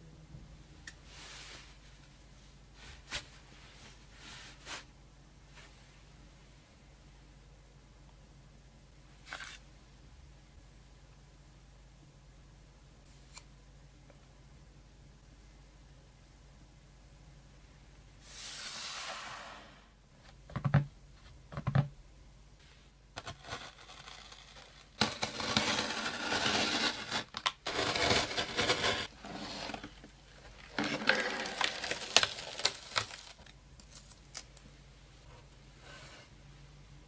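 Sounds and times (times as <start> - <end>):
packaging tearing and rustling: 23.4 - 34.6.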